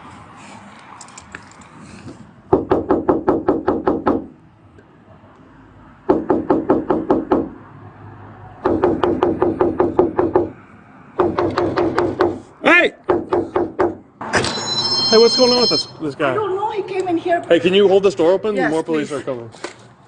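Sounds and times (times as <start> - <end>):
rapid knocking on door: 2.5 - 4.3, 6.1 - 7.5, 8.6 - 10.5, 11.2 - 12.4.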